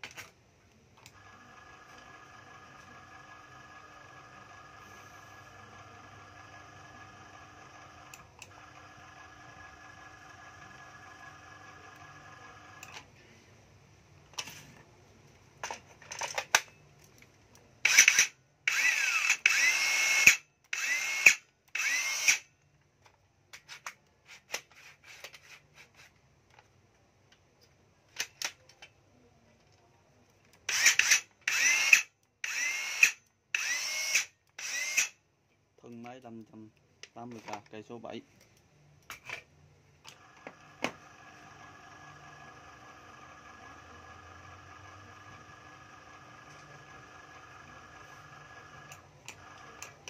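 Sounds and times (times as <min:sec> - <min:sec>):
cordless saw motor whine: 0:01.0 - 0:12.9, 0:17.9 - 0:22.5, 0:30.7 - 0:35.2, 0:40.1 - 0:50.0.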